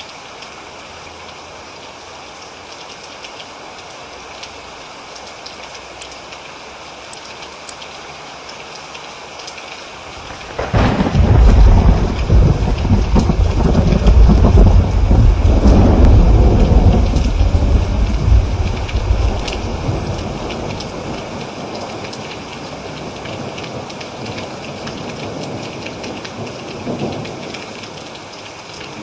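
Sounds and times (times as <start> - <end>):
sharp water drips: 0.0 - 29.0
steady rain falling: 0.0 - 29.0
thunder rumbling: 10.1 - 27.6.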